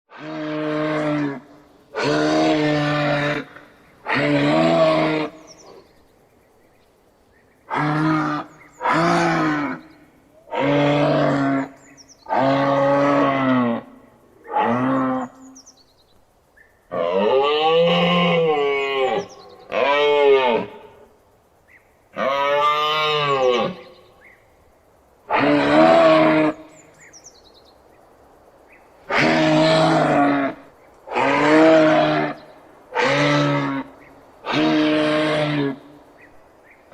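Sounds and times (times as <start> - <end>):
moose bellowing: 0.1 - 5.9, 7.7 - 15.6, 25.3 - 26.9, 29.1 - 36.2.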